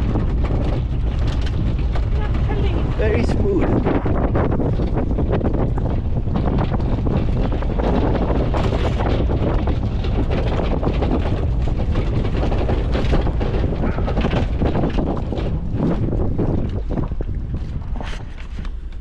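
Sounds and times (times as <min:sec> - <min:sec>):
truck engine running: 0:00.0 - 0:17.8
wind buffeting microphone: 0:00.0 - 0:19.0.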